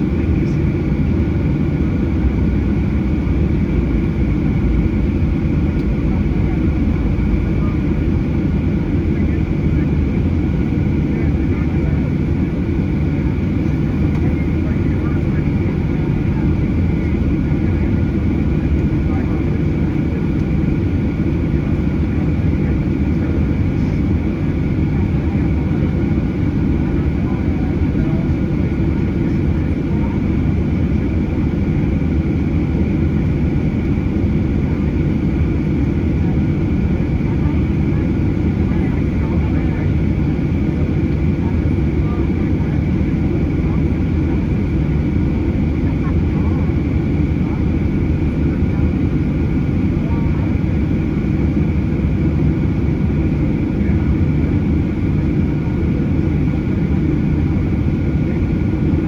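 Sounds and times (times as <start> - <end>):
faint engine whine: 0.0 - 59.0
jet engine rumble in cabin: 0.0 - 59.0.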